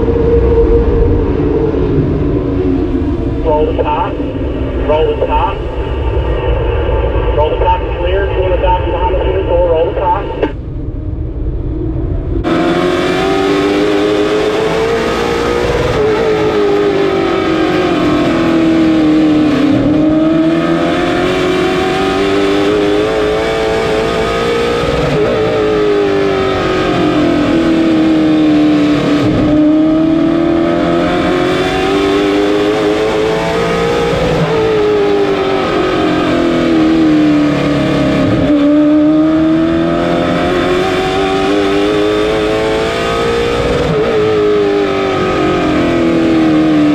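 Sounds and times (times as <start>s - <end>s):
race car engine accelerating: 12.3s - 46.9s.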